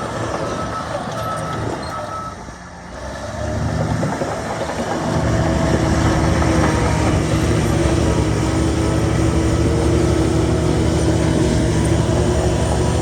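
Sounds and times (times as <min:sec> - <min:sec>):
reversing alarm beep: 0:00.0 - 0:02.4
heavy diesel engine under load: 0:00.0 - 0:13.0.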